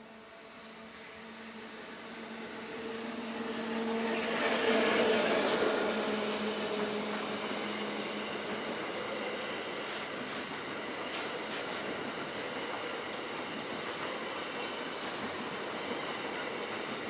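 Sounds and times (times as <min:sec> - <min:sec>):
train motor hum: 0:00.0 - 0:17.0
train wheels on rails: 0:00.0 - 0:17.0.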